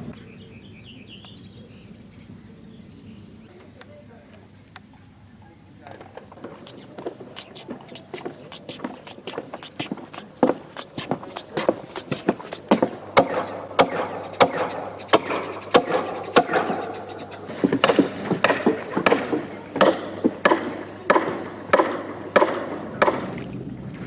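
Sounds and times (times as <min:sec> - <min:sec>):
hammer knocking on wooden boards: 0:06.4 - 0:16.8, 0:17.5 - 0:23.2.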